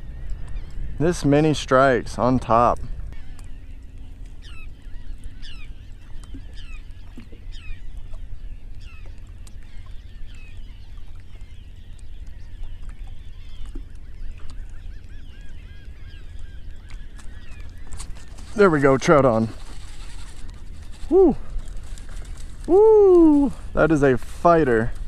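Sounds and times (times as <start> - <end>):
wind rumbling: 0.0 - 25.0
birds crying: 2.6 - 19.5.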